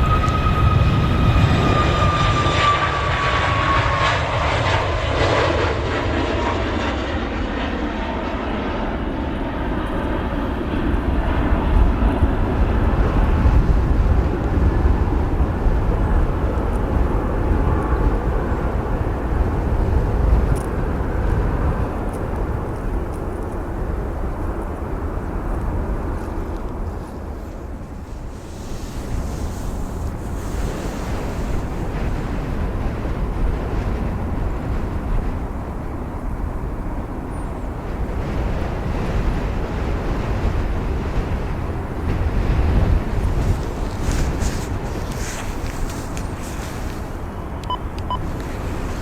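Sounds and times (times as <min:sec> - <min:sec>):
airliner engine whine passing: 0:00.0 - 0:49.0
low jet rumble: 0:00.0 - 0:49.0.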